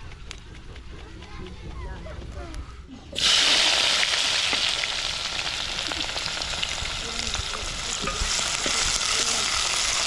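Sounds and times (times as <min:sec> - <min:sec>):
food sizzling in hot oil: 0:03.2 - 0:10.0
oil popping and crackling: 0:03.2 - 0:10.0.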